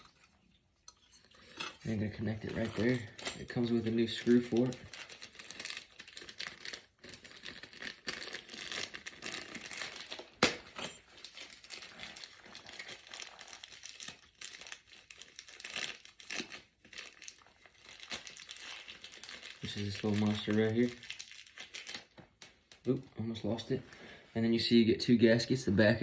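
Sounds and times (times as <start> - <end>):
packaging rustling and crackling: 1.2 - 23.1.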